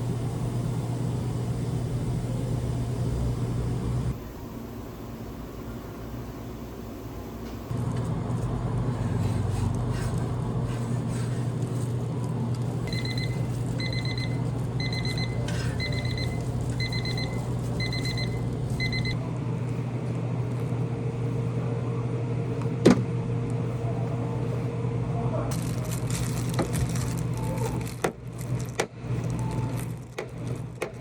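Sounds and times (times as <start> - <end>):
low machine hum: 0.0 - 31.0
electronic alarm beeping: 12.9 - 19.2.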